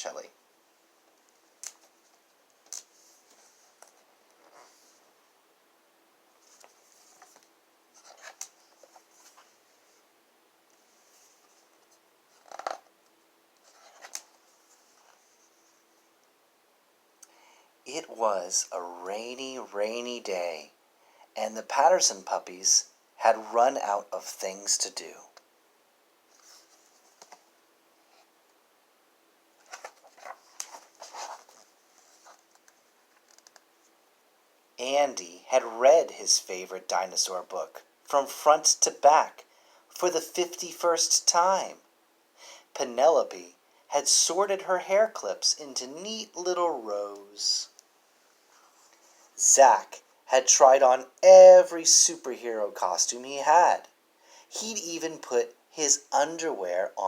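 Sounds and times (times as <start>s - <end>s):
soft scrapes: 2.8s - 5.1s, 10.8s - 12.0s, 26.3s - 27.4s, 29.6s - 33.0s
book pages turning: 6.4s - 9.6s, 13.6s - 15.4s, 29.6s - 33.6s.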